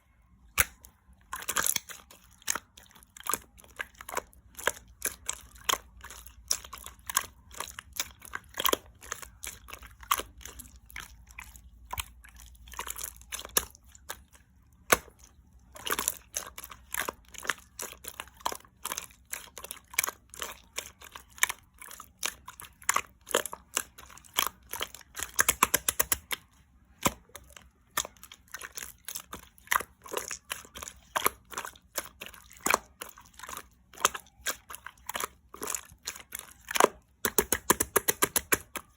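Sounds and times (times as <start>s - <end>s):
slime wet clicks and pops: 0.5s - 2.7s, 14.8s - 15.3s, 22.8s - 26.4s, 36.6s - 38.9s.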